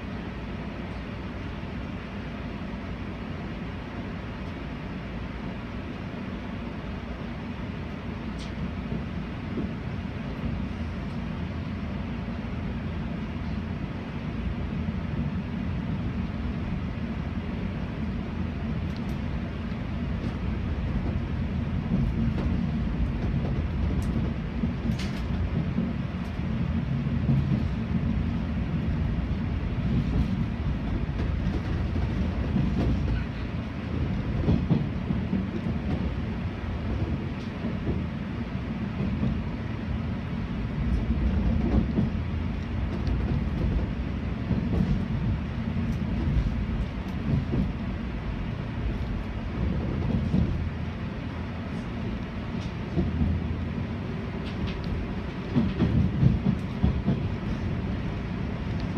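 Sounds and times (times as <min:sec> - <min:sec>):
train wheels rumbling on rail: 0:00.0 - 0:58.9
faint clicks: 0:18.8 - 0:19.2, 0:58.6 - 0:58.9.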